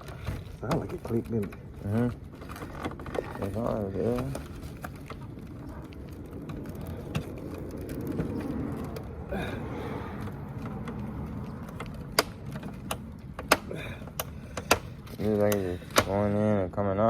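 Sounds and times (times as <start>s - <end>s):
steady low rumble: 0.0s - 15.9s
plastic bumper clips clicking: 10.7s - 16.2s.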